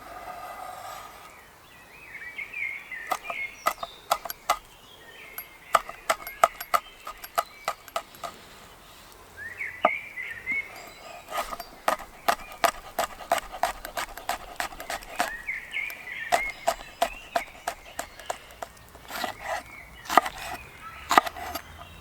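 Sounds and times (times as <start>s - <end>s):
birds chirping: 1.3s - 22.0s
sharp clicks or knocks: 3.1s - 4.7s, 5.4s - 8.4s.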